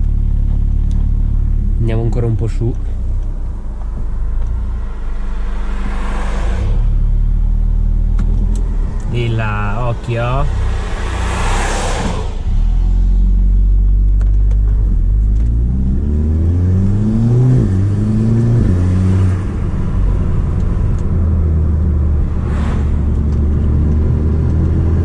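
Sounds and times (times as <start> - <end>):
car engine revving: 0.0 - 25.0
short rush of noise: 4.6 - 8.0, 8.6 - 13.2, 22.3 - 23.4.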